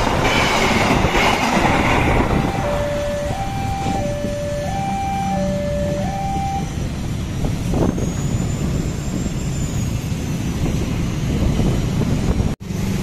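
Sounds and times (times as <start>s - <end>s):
passenger train rumbling: 0.0s - 13.0s
level crossing alarm tones: 1.6s - 7.1s.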